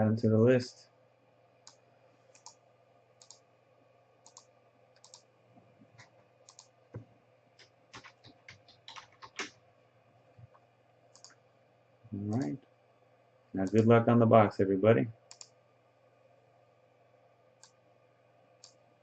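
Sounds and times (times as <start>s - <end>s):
computer keys and mouse clicking: 1.6s - 2.6s, 3.2s - 3.4s, 4.2s - 9.6s, 11.1s - 11.4s, 12.2s - 12.6s, 13.6s - 13.9s, 15.3s - 15.6s, 18.6s - 18.8s.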